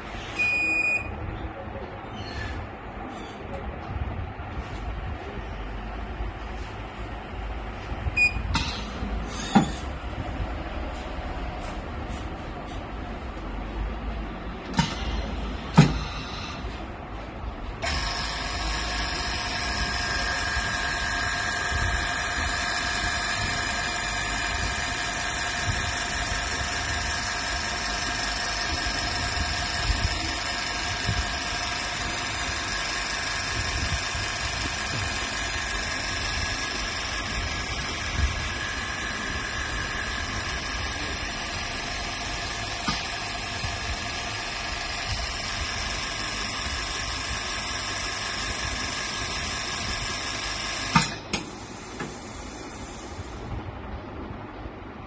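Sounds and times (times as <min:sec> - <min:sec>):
small electric machine whirring: 0:17.8 - 0:53.6.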